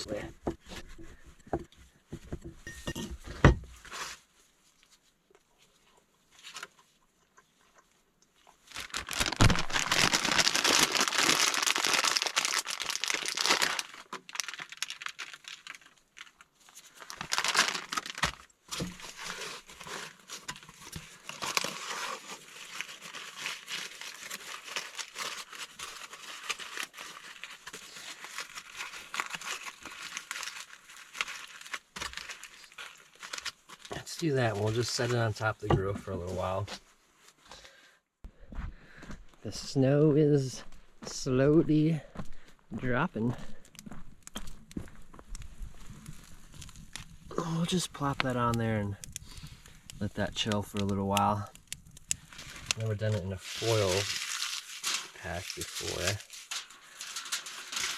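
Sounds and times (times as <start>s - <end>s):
aluminium foil crinkling: 8.4s - 35.5s, 43.6s - 57.9s.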